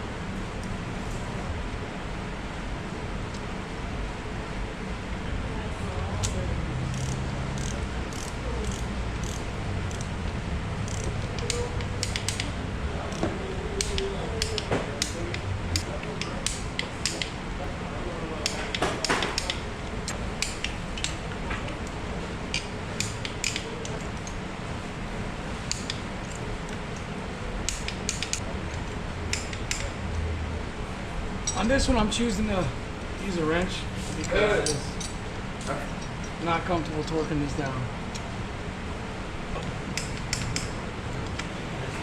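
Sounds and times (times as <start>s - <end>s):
steady low hum: 0.0s - 42.0s
metal tools clinking: 34.1s - 36.4s.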